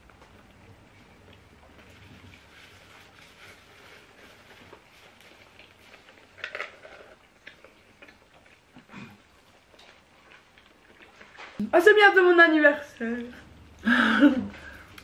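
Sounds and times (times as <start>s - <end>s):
people chewing food: 0.0s - 11.6s, 13.4s - 15.0s.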